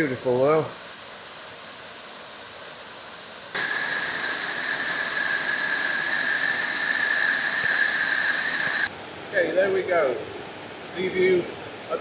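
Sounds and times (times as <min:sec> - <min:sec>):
waterfall rushing: 0:03.6 - 0:08.9.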